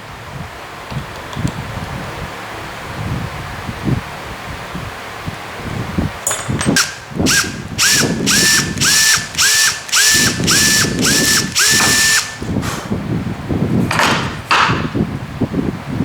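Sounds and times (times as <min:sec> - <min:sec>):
electric drill whining: 0:06.7 - 0:12.6.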